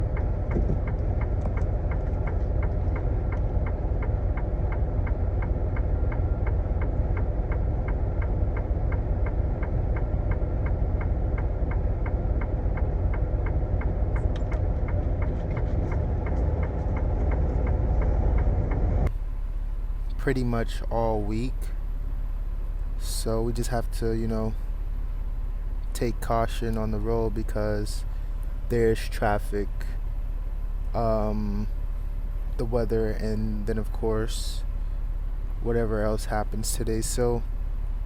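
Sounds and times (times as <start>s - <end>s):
even ticking: 0.0s - 19.2s
diesel truck engine rumbling: 0.0s - 38.0s.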